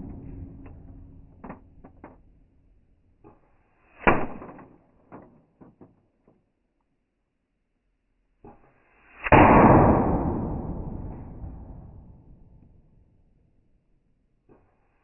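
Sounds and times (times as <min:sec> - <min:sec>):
air rifle shot: 0:03.9 - 0:04.7, 0:09.1 - 0:12.2.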